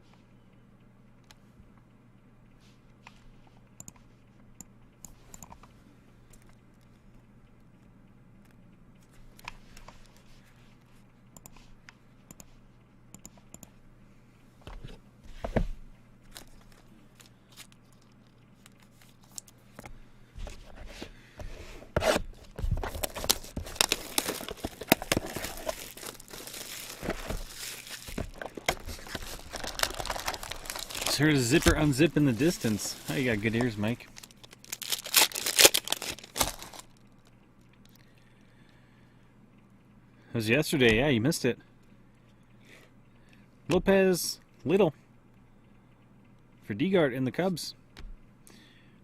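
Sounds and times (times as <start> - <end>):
packaging tearing and crinkling: 22.7 - 37.0.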